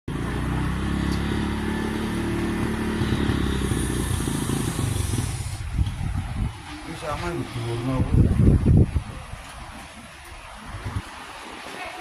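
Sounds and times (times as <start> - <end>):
vehicle engine running: 0.1 - 7.2.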